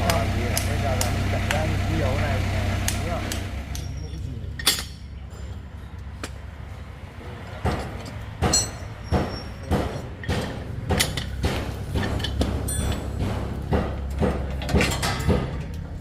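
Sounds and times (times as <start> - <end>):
metal tools clinking on metal: 3.3 - 6.0, 7.7 - 10.2, 12.0 - 13.2, 14.5 - 16.0.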